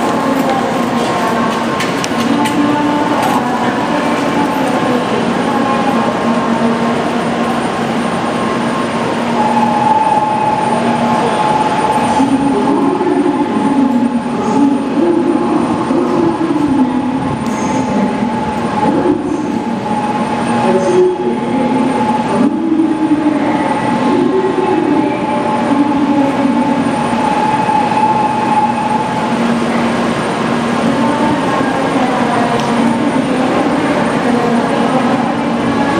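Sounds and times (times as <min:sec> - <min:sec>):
train electrical hum: 0:00.0 - 0:35.9.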